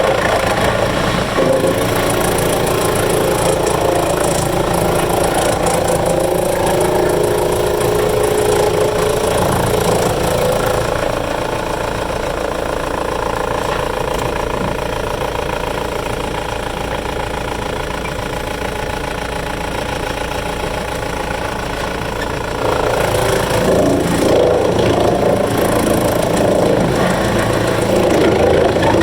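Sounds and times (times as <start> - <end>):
wood chipper engine running: 0.0 - 29.0.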